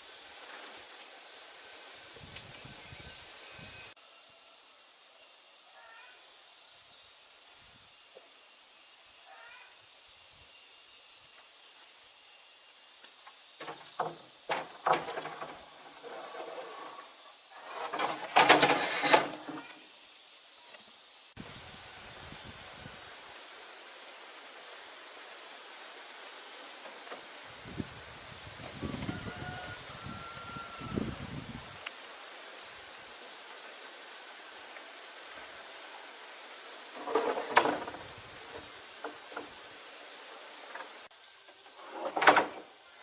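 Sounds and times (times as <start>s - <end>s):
outdoor hiss: 0.0s - 43.0s
loud rustling clatter: 17.6s - 19.6s.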